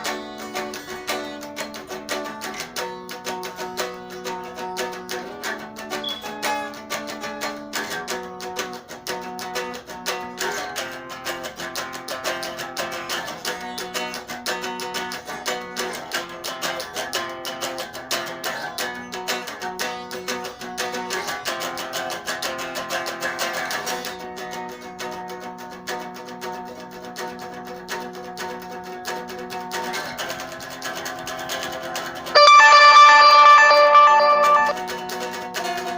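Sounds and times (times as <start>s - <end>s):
solo guitar instrumental: 32.4s - 34.8s.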